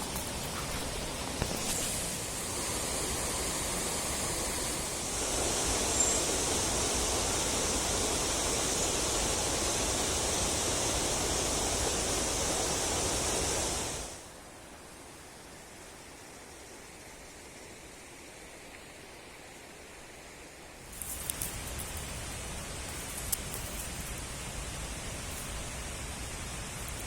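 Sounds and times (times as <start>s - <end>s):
mountain stream rushing: 0.0s - 27.0s.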